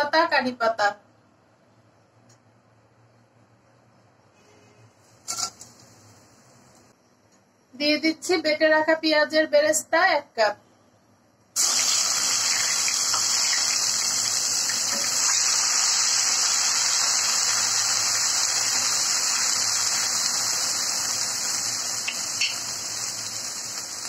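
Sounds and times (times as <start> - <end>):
onion paste sizzling in hot oil: 5.2 - 6.2, 11.6 - 24.0.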